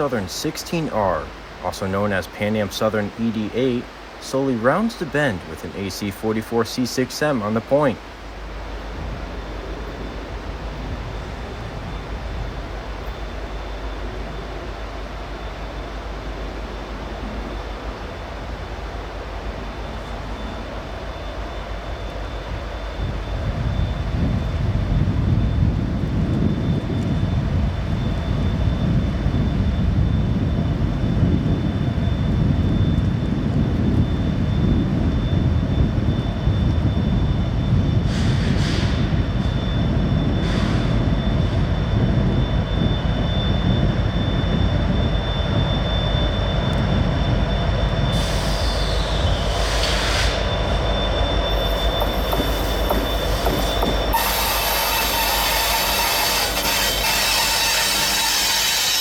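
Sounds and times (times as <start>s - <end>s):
diesel locomotive rumble: 0.0s - 59.0s
train wheels squealing on rail: 19.3s - 59.0s.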